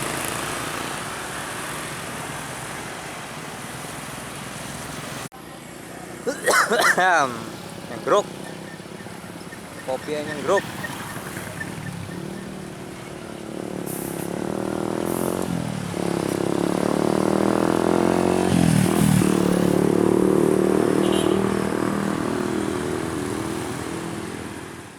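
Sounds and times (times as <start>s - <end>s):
heavy truck engine accelerating: 7.1s - 20.9s.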